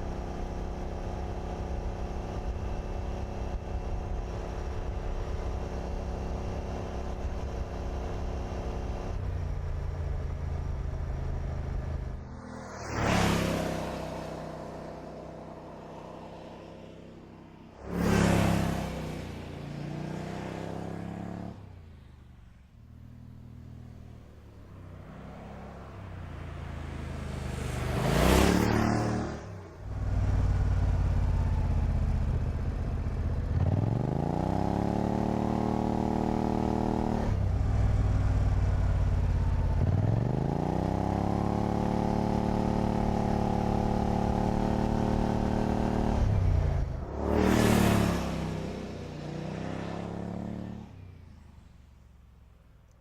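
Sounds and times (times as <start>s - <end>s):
car rushing past: 12.2s - 14.8s, 24.8s - 31.6s, 44.9s - 51.3s
car engine accelerating: 24.7s - 51.8s.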